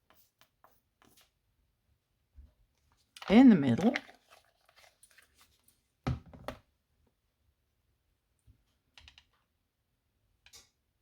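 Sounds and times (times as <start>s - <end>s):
knock on table: 6.1s - 6.6s.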